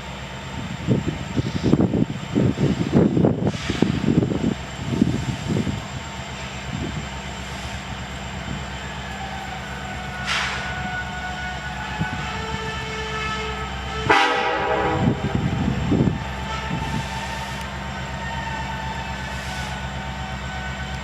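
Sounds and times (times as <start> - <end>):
diesel locomotive engine running: 0.0 - 21.0
locomotive air horn: 9.0 - 21.0.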